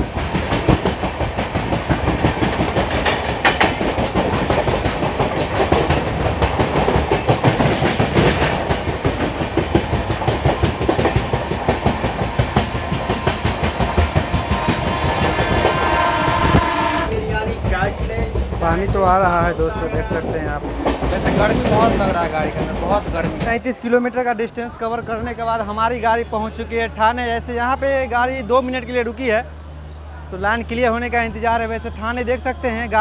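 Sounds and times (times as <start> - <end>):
train wheels clattering over rails: 0.0 - 23.7.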